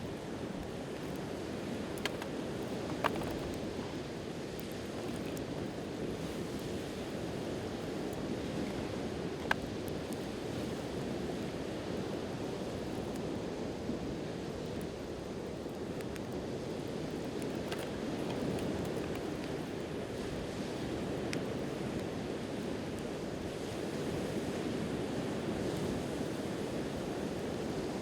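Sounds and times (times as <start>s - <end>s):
campfire crackling and popping: 0.5s - 5.8s, 14.7s - 19.8s.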